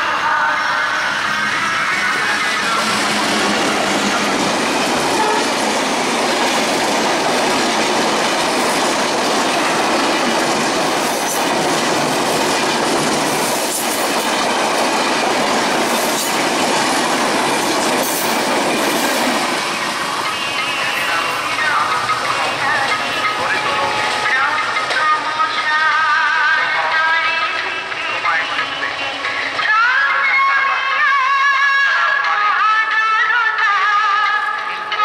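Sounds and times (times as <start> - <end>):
train passing at speed: 0.0 - 35.0
wheels clacking over rail joints: 2.1 - 25.8
high wheel squeals: 5.1 - 5.6.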